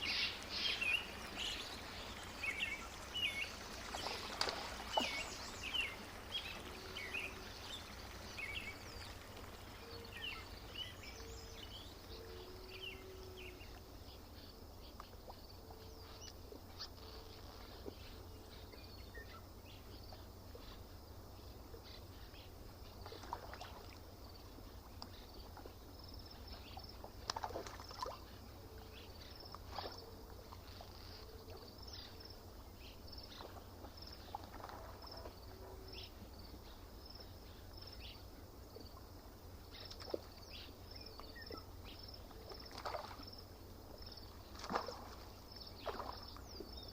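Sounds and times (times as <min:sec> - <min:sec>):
water lapping: 0:00.0 - 0:13.8, 0:22.9 - 0:36.3, 0:38.8 - 0:46.9
bird calls and chirps: 0:00.0 - 0:20.9, 0:39.7 - 0:43.3
steady low hum: 0:00.0 - 0:46.9.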